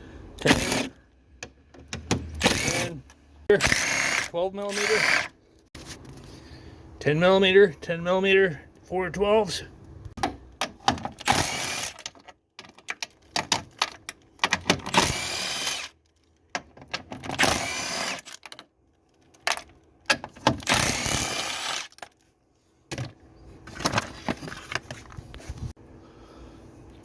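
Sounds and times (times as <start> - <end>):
cordless power tool spinning bolts: 0.4 - 1.0, 2.3 - 3.0, 3.6 - 5.3, 11.2 - 12.1, 14.8 - 16.0, 17.2 - 18.5, 20.6 - 22.0.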